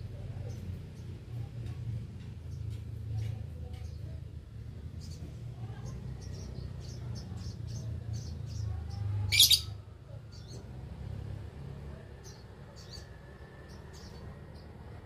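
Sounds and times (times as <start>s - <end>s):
lovebirds chirping: 2.4s - 10.8s
harsh bird call: 9.3s - 9.8s.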